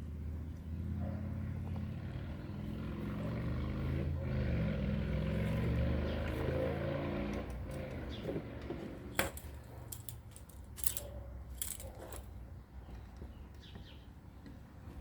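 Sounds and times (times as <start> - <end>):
engine hum: 0.0 - 12.3.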